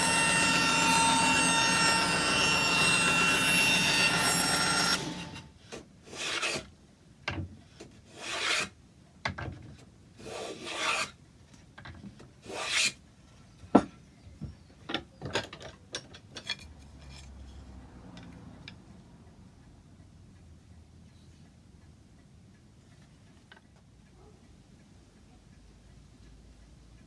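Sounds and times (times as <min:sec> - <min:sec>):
hand tool rasping wood: 0:00.0 - 0:05.5.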